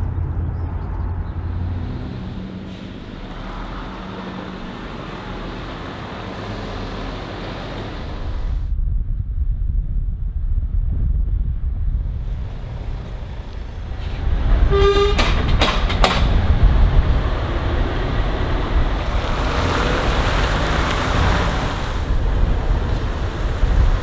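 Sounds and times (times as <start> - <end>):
heavy truck rumbling: 0.0 - 8.7, 11.9 - 24.0
truck horn toot: 14.0 - 16.5.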